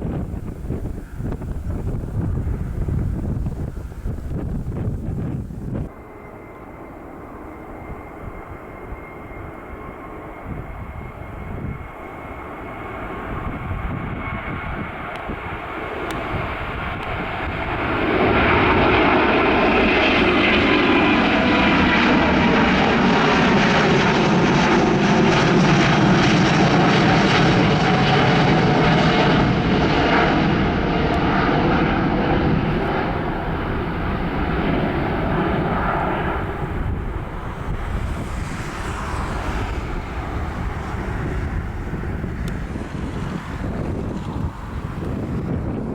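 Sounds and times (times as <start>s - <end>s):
thin steady whine: 0.0s - 24.8s
airliner engines passing: 0.0s - 45.9s.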